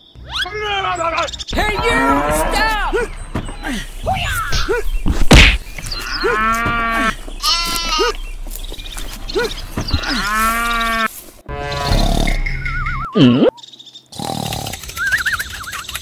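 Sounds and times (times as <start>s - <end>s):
sharp whack: 4.5s - 5.9s
cow mooing: 6.0s - 8.2s, 9.2s - 12.4s
sheep bleating: 6.0s - 8.2s.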